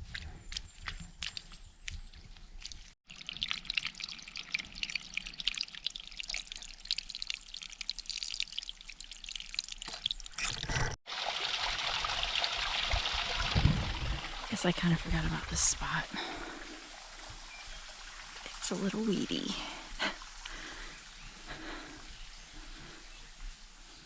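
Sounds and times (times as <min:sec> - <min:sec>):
stream trickling over rocks: 0:02.5 - 0:23.0.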